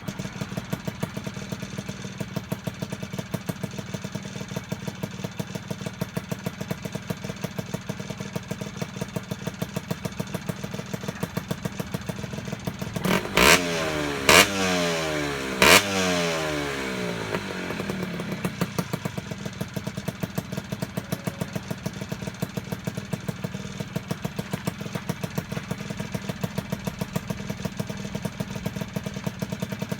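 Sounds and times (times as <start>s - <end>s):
two-stroke engine idling: 0.0s - 29.9s
engine revving: 12.8s - 19.0s.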